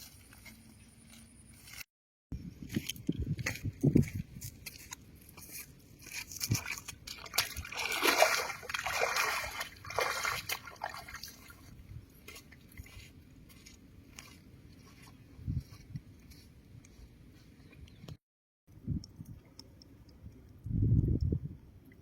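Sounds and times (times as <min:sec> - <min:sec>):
shallow water splashing: 0:06.4 - 0:11.7.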